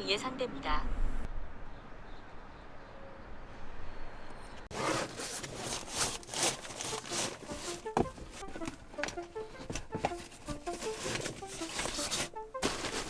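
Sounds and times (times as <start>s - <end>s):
rustling handling noise: 4.6s - 13.0s
plucked background music: 4.7s - 13.0s.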